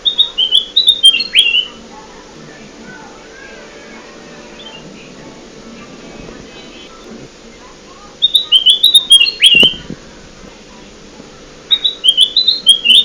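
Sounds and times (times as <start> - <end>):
bulbul song: 0.0 - 1.9, 2.5 - 10.3, 11.3 - 13.0.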